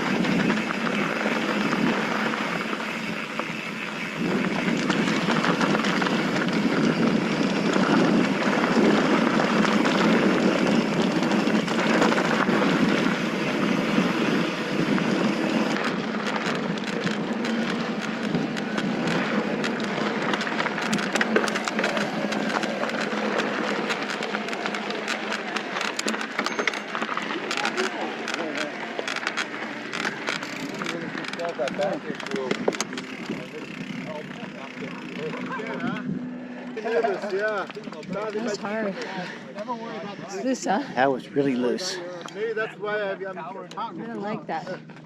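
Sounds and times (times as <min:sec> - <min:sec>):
gravel crunching and clattering: 0:00.0 - 0:36.2.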